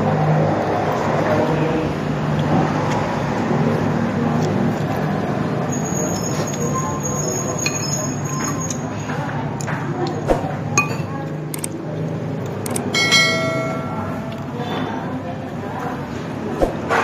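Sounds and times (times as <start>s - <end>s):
metal spoon clinking against bowl: 6.3s - 8.9s, 10.8s - 11.7s, 12.8s - 14.6s.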